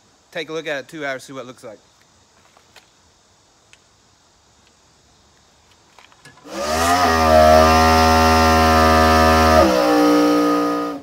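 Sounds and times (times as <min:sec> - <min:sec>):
car engine revving hard: 0:06.5 - 0:11.0.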